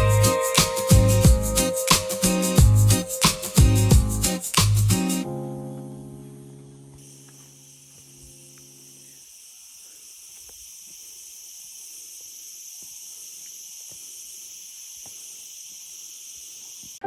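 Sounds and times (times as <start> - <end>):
insects chirping chorus: 0.0 - 5.3, 6.1 - 17.0
background music: 0.0 - 7.0.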